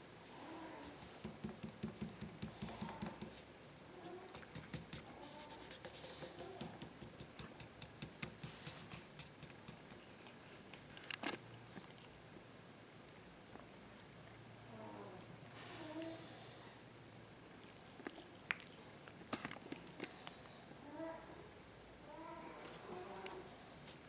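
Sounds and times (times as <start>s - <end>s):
soft taps and knocks: 0.9s - 3.4s
light scratching: 4.0s - 11.4s.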